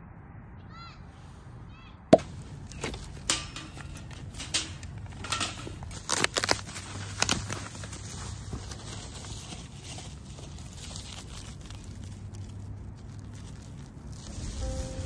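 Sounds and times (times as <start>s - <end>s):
sharp clicks and knocks: 2.2s - 6.6s.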